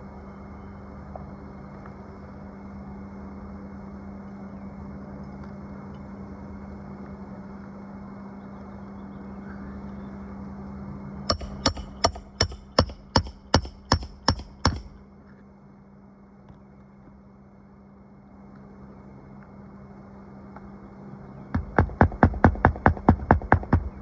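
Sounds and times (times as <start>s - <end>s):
hammer driving nails: 11.3s - 14.9s, 21.6s - 24.0s.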